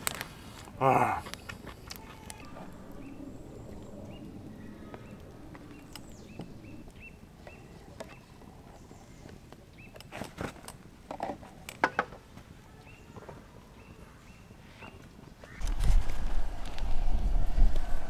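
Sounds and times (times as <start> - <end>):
small birds chirping: 0.9 - 10.2, 11.8 - 15.7.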